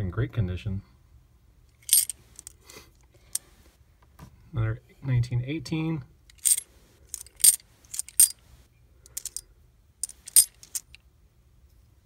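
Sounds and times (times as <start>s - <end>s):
coins clinking: 1.8s - 2.5s, 6.3s - 8.4s, 9.2s - 9.4s, 10.0s - 11.0s.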